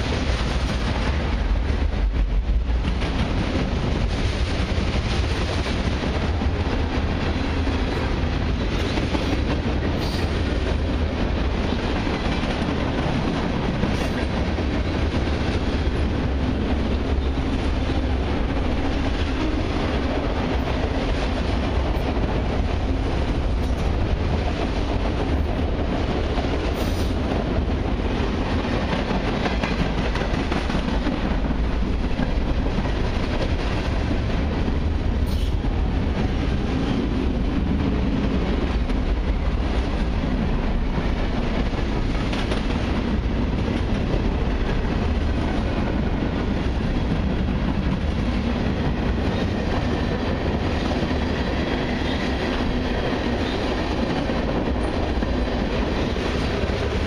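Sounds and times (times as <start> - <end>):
freight train wheels rumbling on rails: 0.0 - 57.0.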